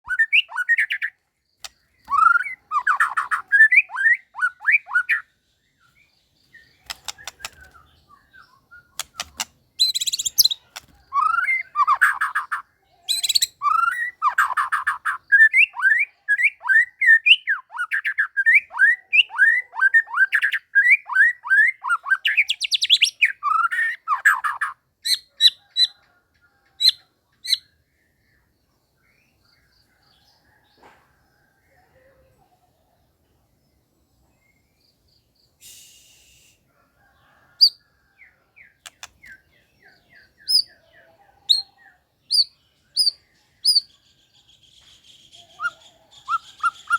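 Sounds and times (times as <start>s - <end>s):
bird singing whistled notes: 0.0s - 26.0s, 35.4s - 36.6s, 38.7s - 40.9s, 41.5s - 46.9s
sharp clicks: 6.8s - 7.8s, 9.0s - 11.0s, 38.8s - 39.4s.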